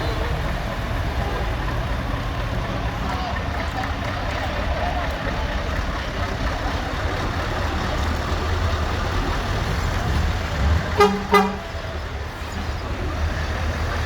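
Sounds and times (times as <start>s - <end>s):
vehicle engines rumbling: 0.0s - 14.0s
short horn toots: 10.9s - 11.7s.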